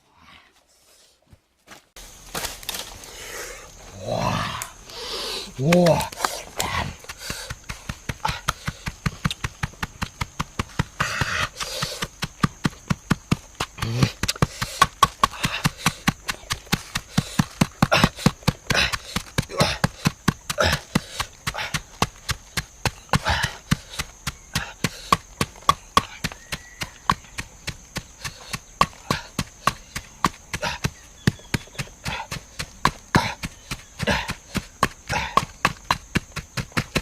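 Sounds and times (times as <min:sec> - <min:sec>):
breathy sounds: 0:02.9 - 0:09.1, 0:10.7 - 0:12.3, 0:13.7 - 0:22.0, 0:31.8 - 0:35.6.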